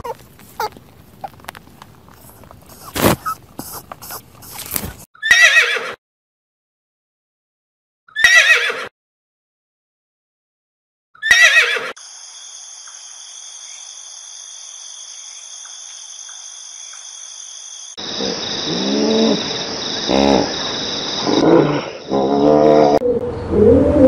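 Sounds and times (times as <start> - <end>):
horse whinnying: 2.7 - 6.0, 8.2 - 8.9, 11.2 - 11.9
steady high-pitched hiss: 12.0 - 21.3.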